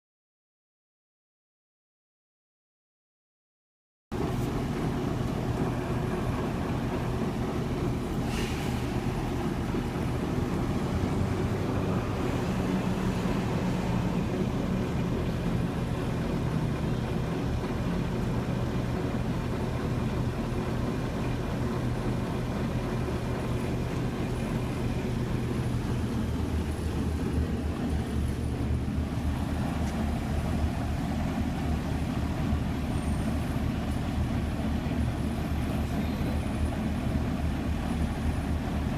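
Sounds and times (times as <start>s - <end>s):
truck engine idling: 4.1s - 38.9s.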